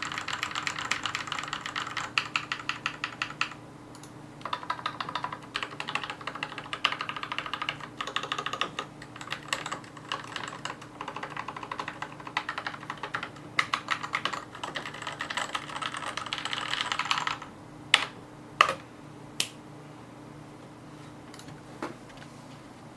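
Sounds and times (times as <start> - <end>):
fast typing on mechanical keyboard: 0.0 - 3.6, 4.4 - 17.5.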